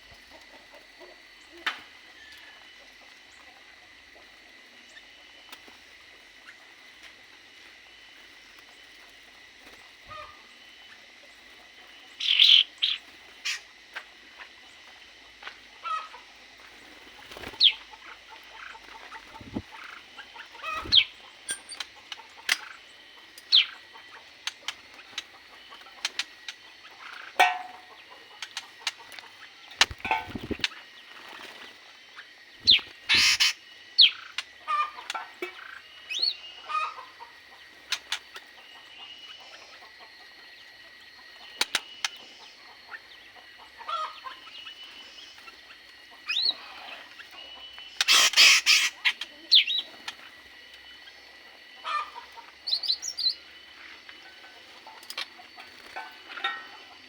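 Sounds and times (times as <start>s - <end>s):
birds chirping: 10.1s - 13.7s, 14.6s - 39.9s, 41.4s - 57.0s.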